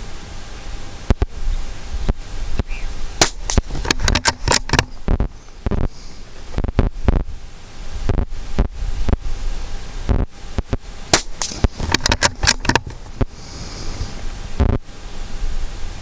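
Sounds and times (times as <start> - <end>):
rifle handling clicks: 3.2 - 5.0, 11.2 - 13.1
rifle shots cracking: 3.2 - 5.0, 11.1 - 13.0.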